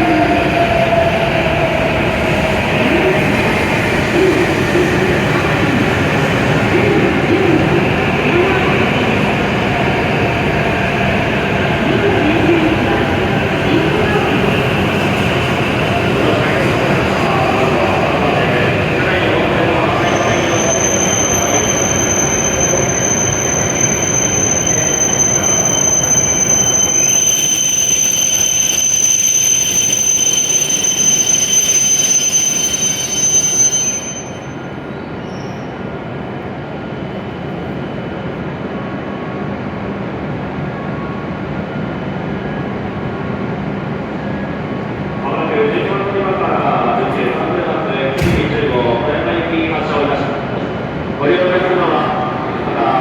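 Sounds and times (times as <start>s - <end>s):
train brakes squealing: 19.6s - 36.0s.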